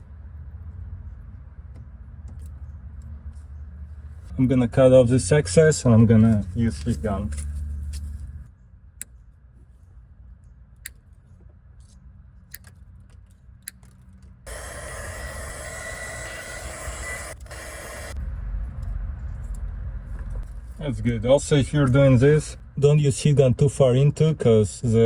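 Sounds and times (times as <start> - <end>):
heat gun blowing: 14.5 - 18.2.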